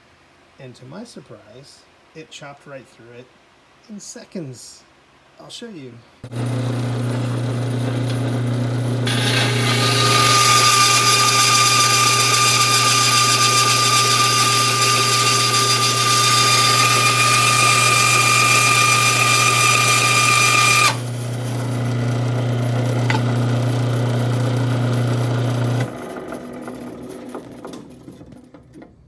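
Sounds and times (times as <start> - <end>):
saw motor hum: 6.2 - 28.3
band saw blade cutting metal: 6.3 - 28.1.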